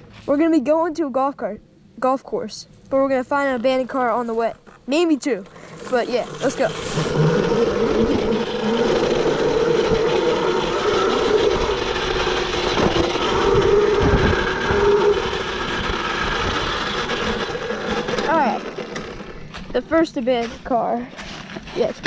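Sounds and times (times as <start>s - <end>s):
electric motor whine: 5.5s - 19.7s
rushing noise: 5.6s - 18.2s.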